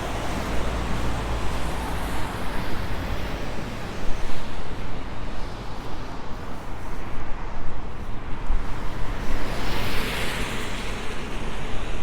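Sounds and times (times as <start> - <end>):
street traffic: 0.0 - 3.4.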